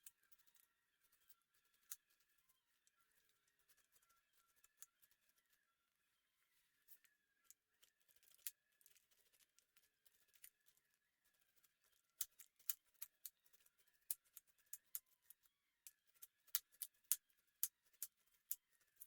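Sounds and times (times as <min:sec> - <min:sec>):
sharp clicks and snips: 0:15.8 - 0:18.6.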